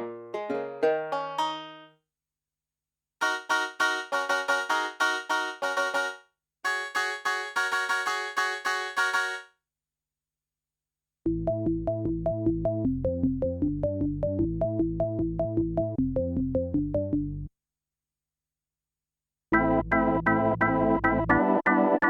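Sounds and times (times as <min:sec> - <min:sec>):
synthesizer piano-like notes: 0:03.2 - 0:09.4, 0:19.6 - 0:22.0.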